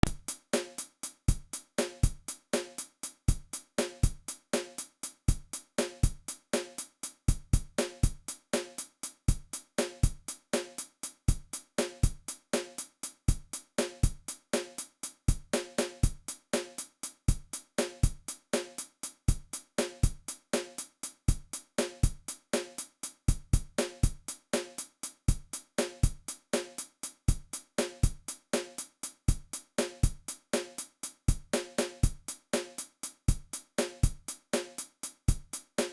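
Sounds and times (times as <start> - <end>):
dry drum beat: 0.0 - 0.4.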